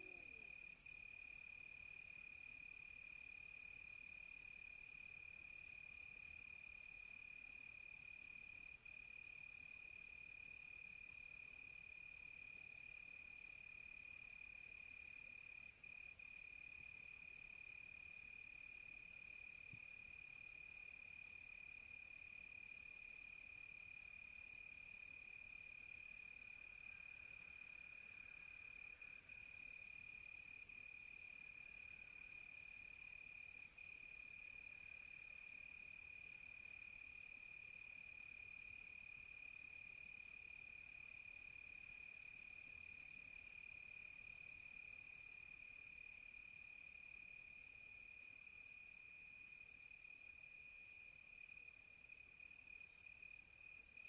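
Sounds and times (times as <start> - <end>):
short cricket chirps: 24.1 - 54.0.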